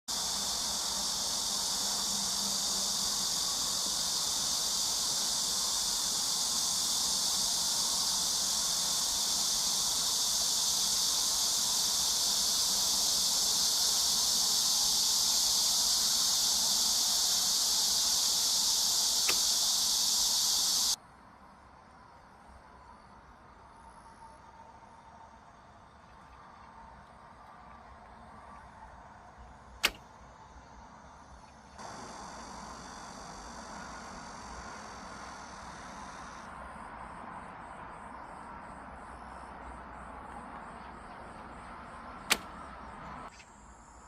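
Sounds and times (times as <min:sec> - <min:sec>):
high-pitched insect chorus: 0:00.1 - 0:44.0
faint click: 0:18.6 - 0:19.7, 0:42.3 - 0:42.5.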